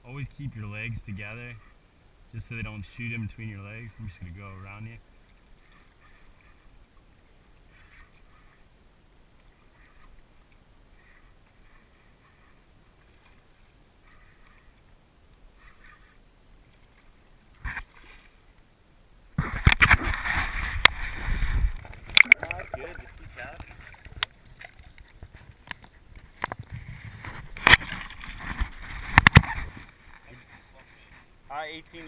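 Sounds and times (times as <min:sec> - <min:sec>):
water splash: 0:19.4 - 0:24.9
water sloshing: 0:19.4 - 0:31.1.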